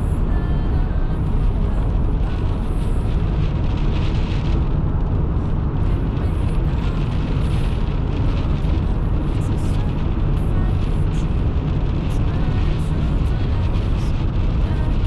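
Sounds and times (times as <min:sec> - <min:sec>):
car driving on highway: 0:00.0 - 0:15.0.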